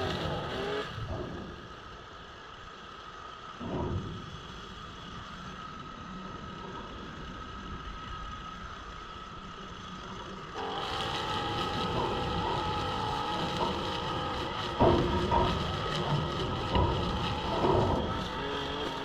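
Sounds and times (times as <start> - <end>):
small petrol engine running: 0.0 - 1.8, 9.7 - 19.0.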